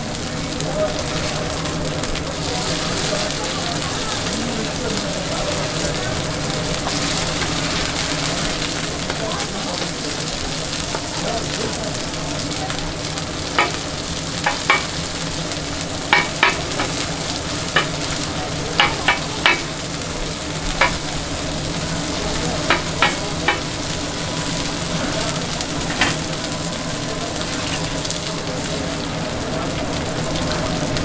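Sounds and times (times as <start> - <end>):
pancakes sizzling in oil: 0.0 - 31.0
metal spatula clinking on griddle: 13.6 - 13.8, 16.1 - 17.0, 18.8 - 19.7, 20.8 - 21.1.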